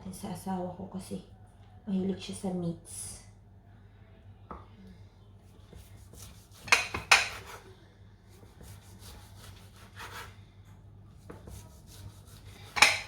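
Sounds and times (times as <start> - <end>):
utensil scraping a dish: 6.1 - 7.7, 11.5 - 13.0.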